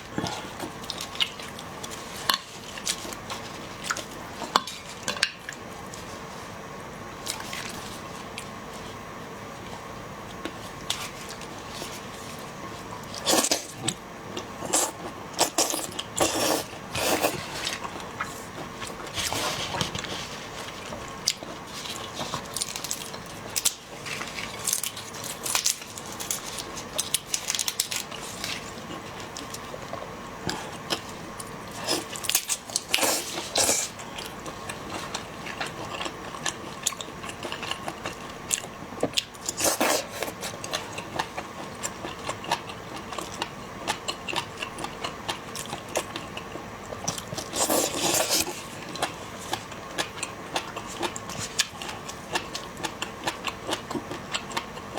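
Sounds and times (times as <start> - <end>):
chewing: 13.0 - 54.9.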